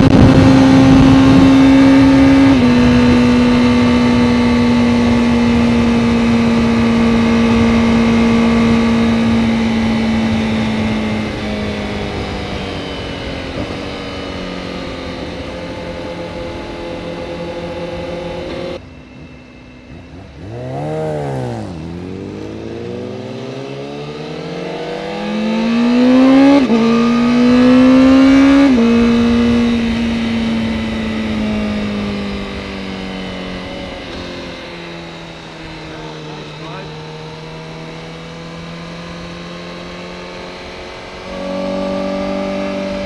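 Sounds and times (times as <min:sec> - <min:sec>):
motorcycle engine accelerating: 0:00.0 - 0:43.0.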